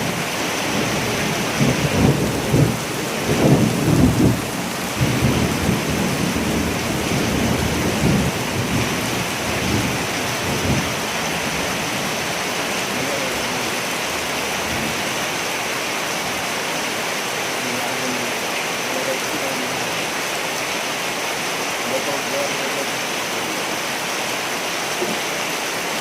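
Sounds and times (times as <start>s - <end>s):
heavy rain: 0.0s - 26.0s
rolling thunder: 0.8s - 11.6s.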